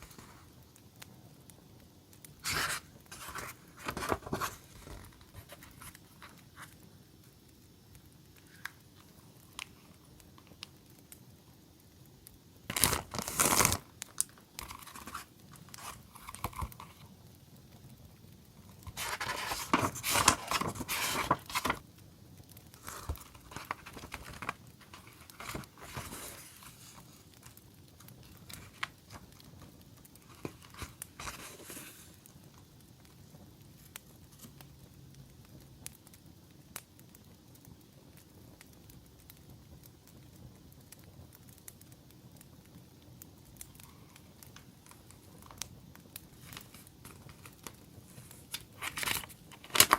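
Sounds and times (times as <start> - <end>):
paper rustling and crinkling: 2.4 - 6.8, 12.7 - 17.1, 18.8 - 21.8, 22.7 - 29.4, 30.2 - 32.3, 46.4 - 49.9.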